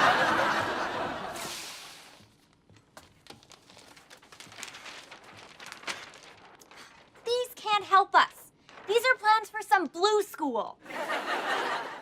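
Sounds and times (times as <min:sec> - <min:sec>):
studio audience laughter: 0:00.0 - 0:01.5, 0:10.9 - 0:12.0
faint rustles and clicks: 0:02.0 - 0:07.3.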